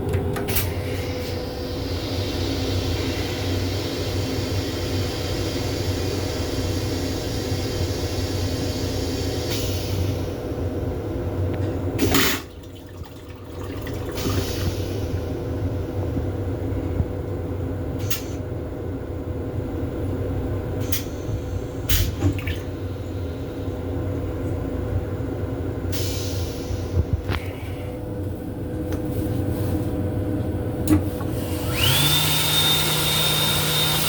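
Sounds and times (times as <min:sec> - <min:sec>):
moving train rumble and hum: 0:00.0 - 0:12.2, 0:13.2 - 0:21.9, 0:22.6 - 0:32.0
toilet flushing: 0:12.0 - 0:16.0, 0:21.9 - 0:23.0, 0:30.9 - 0:34.0.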